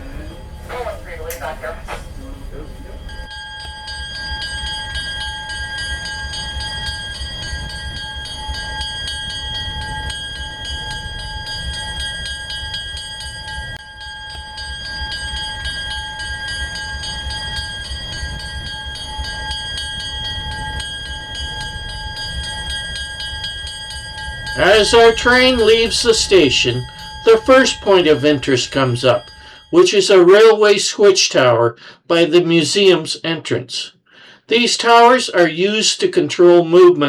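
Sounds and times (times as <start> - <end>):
diesel train engine rumble: 0.0 - 3.3, 24.4 - 29.8.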